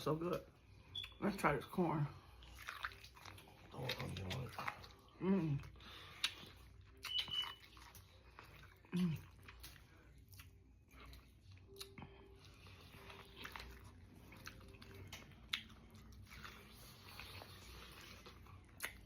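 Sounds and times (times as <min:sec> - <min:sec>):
biting and chewing corn: 0:02.4 - 0:19.0
wet mouth clicks: 0:11.7 - 0:12.0, 0:18.8 - 0:19.0.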